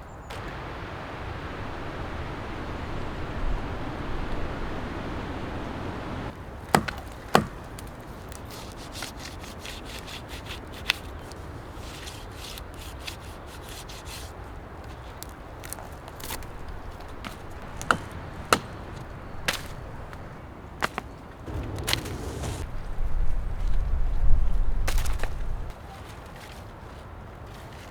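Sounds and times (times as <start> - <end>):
low rushing background: 0.3 - 6.3, 21.5 - 25.7
wood being chopped: 6.6 - 8.5, 15.6 - 22.6, 24.9 - 25.7
small cracks and clicks: 14.9 - 21.1.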